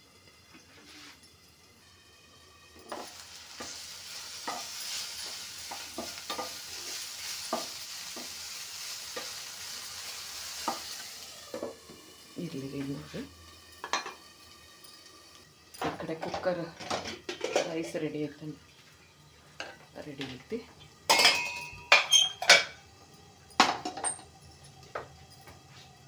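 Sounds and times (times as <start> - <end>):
vegetables sizzling in oil: 0.0 - 26.0
spatula scraping and knocking pan: 2.9 - 8.4, 10.6 - 10.9.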